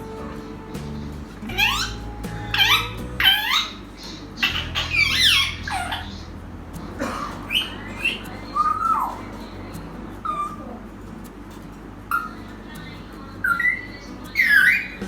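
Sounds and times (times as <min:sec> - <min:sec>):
parrot whistled chirps: 0:01.5 - 0:06.2, 0:13.5 - 0:15.0.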